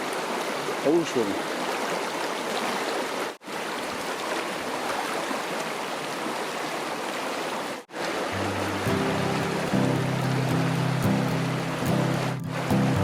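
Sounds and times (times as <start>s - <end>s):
stream running over rocks: 0.0s - 13.0s
background music low notes: 8.4s - 13.0s.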